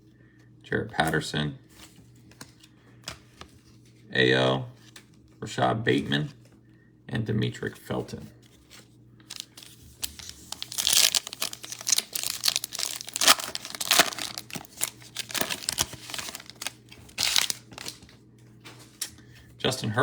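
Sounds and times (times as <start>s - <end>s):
foil wrapper tearing and crinkling: 9.3s - 18.2s.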